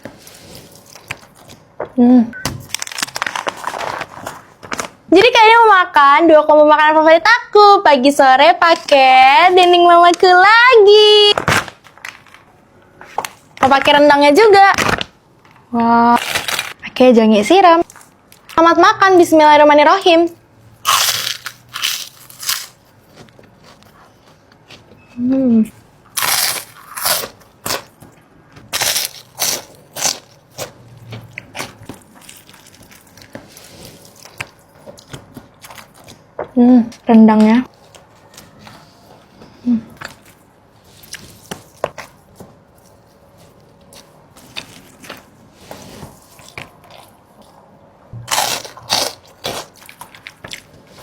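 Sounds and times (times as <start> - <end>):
loud crunching bites of crisp food: 16.2 - 16.8, 20.8 - 22.8, 26.2 - 28.0, 28.7 - 30.9, 48.3 - 50.7.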